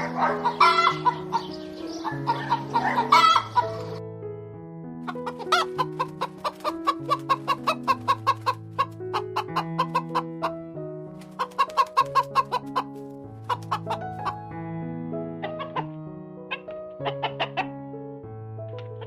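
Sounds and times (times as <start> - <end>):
chicken clucking: 0.0 - 4.0, 5.1 - 10.6, 11.2 - 14.4, 15.4 - 17.7
background music with slow bass: 0.0 - 19.0.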